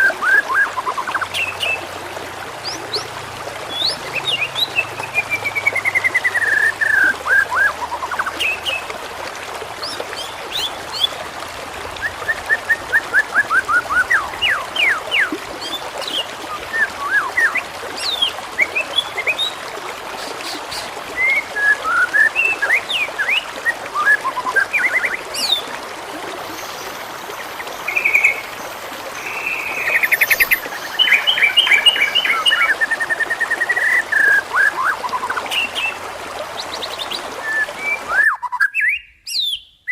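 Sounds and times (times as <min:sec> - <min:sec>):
songbirds singing: 0:00.0 - 0:01.9, 0:02.5 - 0:08.9, 0:20.2 - 0:39.9
trickling water: 0:00.0 - 0:38.7.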